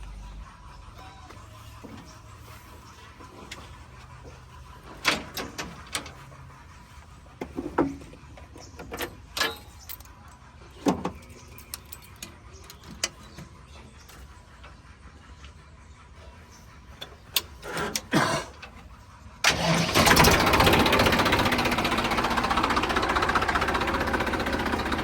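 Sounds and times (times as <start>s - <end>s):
engine running: 0.0s - 25.0s
sharp clanks and knocks: 3.4s - 6.4s, 7.3s - 13.5s.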